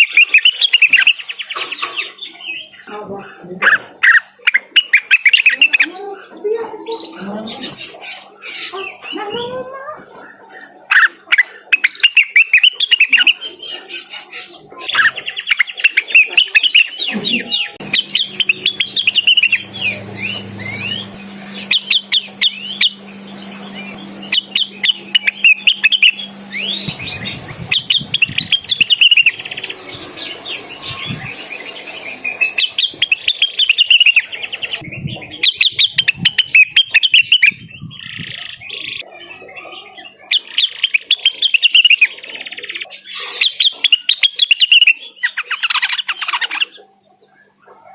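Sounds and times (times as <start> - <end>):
leafbird singing: 0.0 - 2.9, 11.5 - 39.0.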